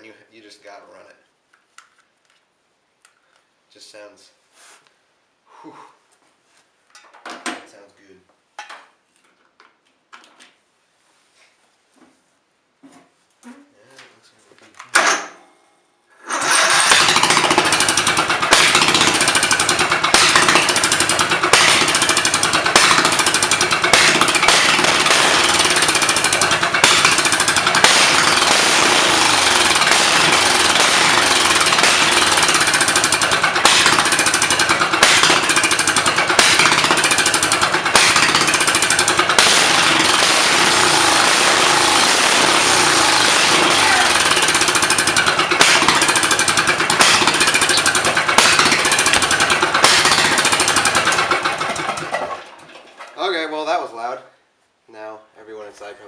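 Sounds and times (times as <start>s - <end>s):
mower engine rattling exhaust bark: 16.3s - 53.2s.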